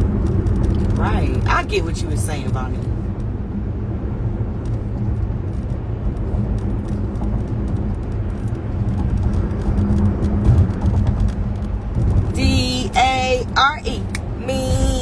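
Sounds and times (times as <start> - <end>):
constant hum: 0.0 - 15.0.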